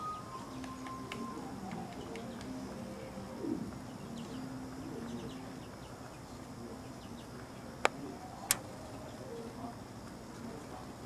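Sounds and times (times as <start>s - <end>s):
bird cooing: 0.0s - 5.7s.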